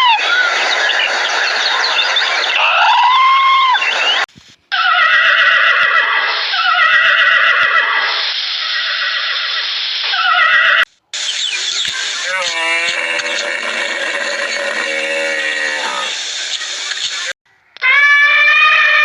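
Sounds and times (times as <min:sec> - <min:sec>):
animal cries sliding down in pitch: 0:17.8 - 0:19.0.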